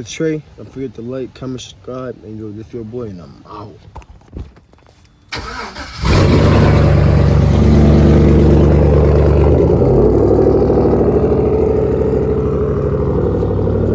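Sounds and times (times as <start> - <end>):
loud engine idling: 5.4 - 13.9.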